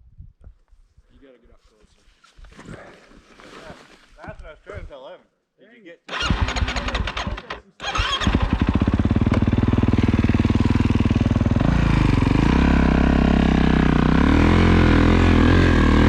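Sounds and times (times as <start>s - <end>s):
snowbike engine revving: 6.1s - 16.0s.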